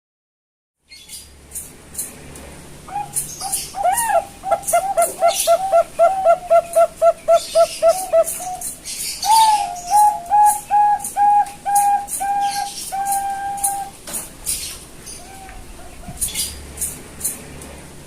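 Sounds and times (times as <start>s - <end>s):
dove cooing: 2.9s - 14.0s, 15.2s - 16.6s.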